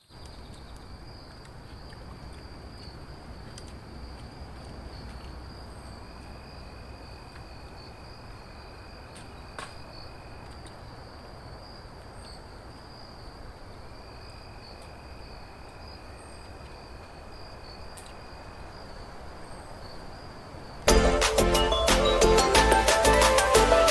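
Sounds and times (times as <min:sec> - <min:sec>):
insects chirring: 0:00.0 - 0:20.9
light clicks: 0:00.2 - 0:05.5.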